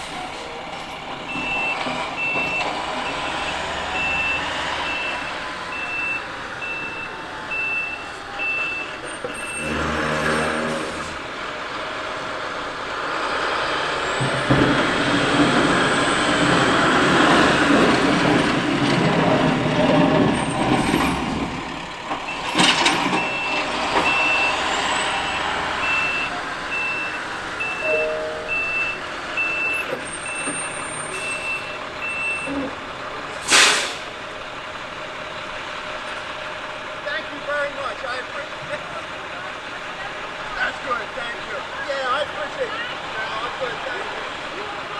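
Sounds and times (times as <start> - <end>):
truck backup alarm beeping: 0.0 - 11.6, 12.2 - 44.9
truck engine running: 0.0 - 44.9
sharp air hiss: 33.4 - 34.1.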